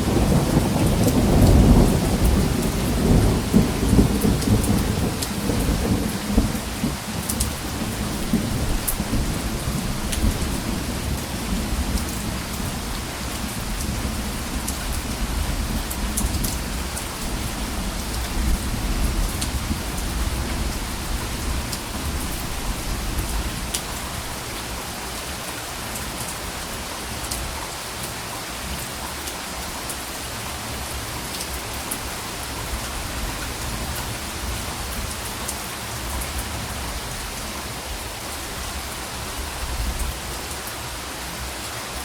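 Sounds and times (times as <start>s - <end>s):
low rumble of thunder: 0.0s - 24.6s
steady rain: 0.0s - 42.0s.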